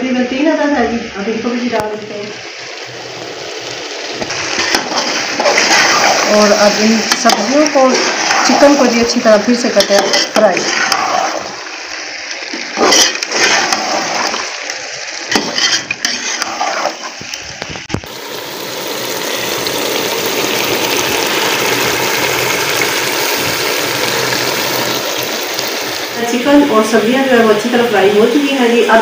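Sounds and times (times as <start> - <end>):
chicken and vegetables frying: 0.4 - 29.0
metal spoon scraping pot: 9.8 - 11.5, 12.8 - 14.1, 15.3 - 17.2.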